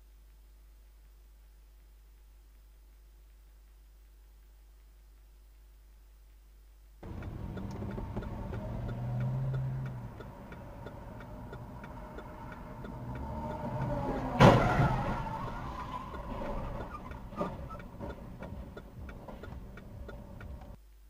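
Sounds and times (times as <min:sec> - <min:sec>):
car engine running: 0:07.0 - 0:20.8
turn signal ticking: 0:07.0 - 0:20.9
car collision impact: 0:14.2 - 0:18.2.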